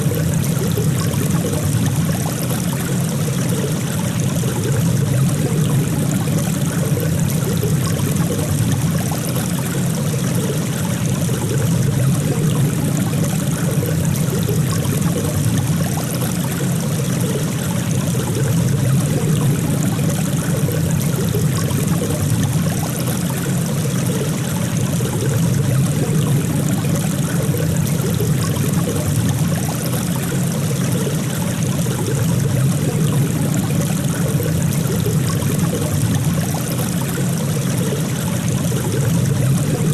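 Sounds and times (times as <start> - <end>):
running water rushing: 0.0 - 39.9
water trickling: 0.0 - 39.9.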